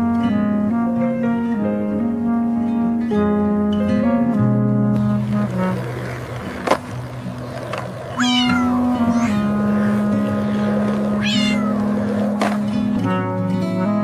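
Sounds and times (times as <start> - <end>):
background music with held notes: 0.0 - 14.0
cat meowing: 8.1 - 10.2, 11.0 - 12.2.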